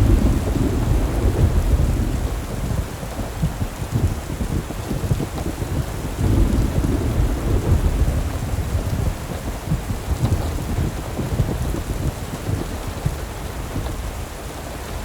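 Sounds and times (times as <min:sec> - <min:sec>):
deep fluttering rumble: 0:00.0 - 0:12.0
steady rain: 0:00.0 - 0:15.0.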